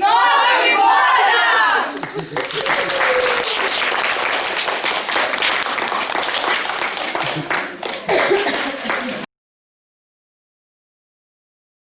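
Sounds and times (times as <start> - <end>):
audience applauding: 1.7 - 9.3.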